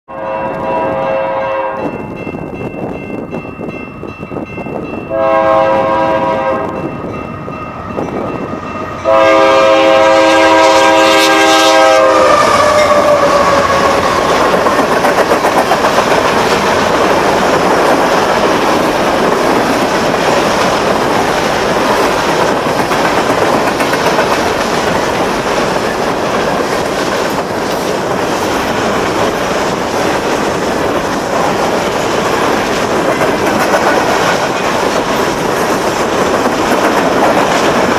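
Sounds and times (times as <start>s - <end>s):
locomotive air horn blasts: 0.1s - 1.9s, 5.1s - 6.8s, 9.0s - 14.0s
train wheels clickety-clack: 12.1s - 37.9s.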